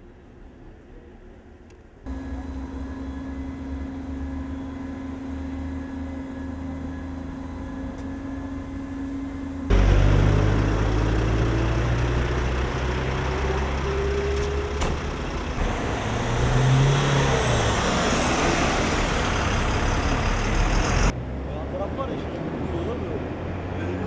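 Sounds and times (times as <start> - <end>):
heavy engine rumbling: 2.0 - 21.2.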